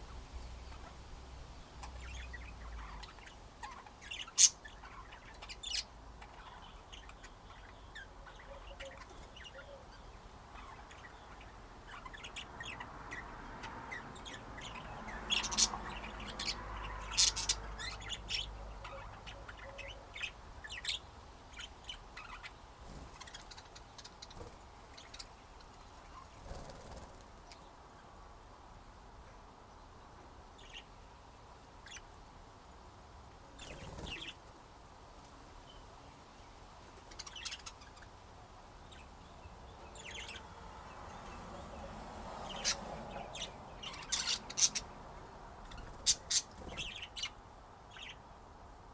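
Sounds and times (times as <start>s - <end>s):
budgerigars chirping: 1.8s - 27.6s, 37.0s - 38.2s, 38.8s - 48.3s.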